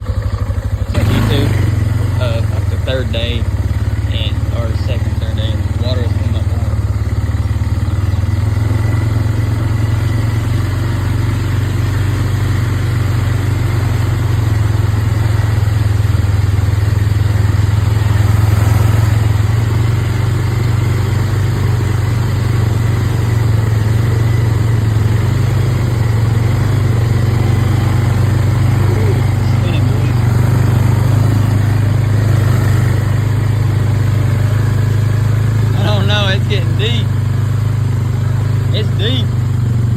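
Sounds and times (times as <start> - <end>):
off-road vehicle engine droning: 0.0 - 39.9.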